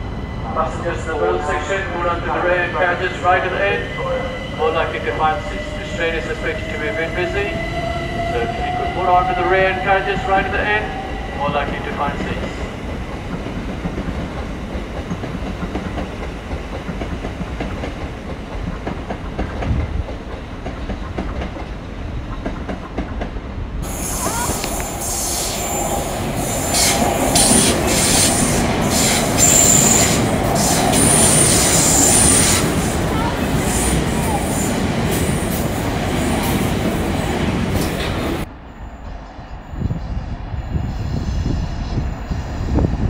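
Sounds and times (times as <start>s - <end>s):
electric train rumbling: 0.0s - 43.0s
high-pitched wheel squeal: 23.9s - 32.6s.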